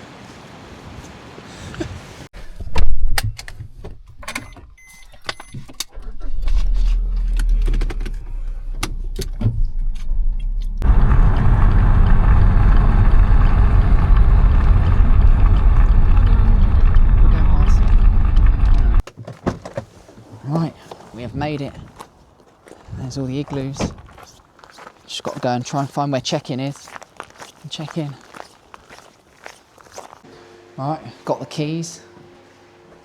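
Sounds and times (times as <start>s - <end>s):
car driving on road: 5.9s - 19.0s
low engine rumble: 6.0s - 19.0s.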